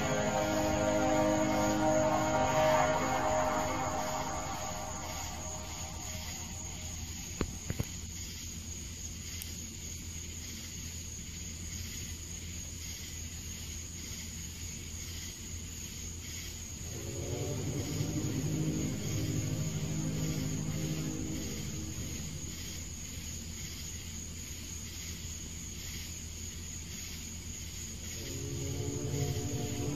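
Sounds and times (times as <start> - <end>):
deep droning tone: 0.0 - 7.7, 16.8 - 23.6, 28.2 - 29.9
low humming drone: 0.0 - 7.9, 16.8 - 23.7, 28.1 - 29.9.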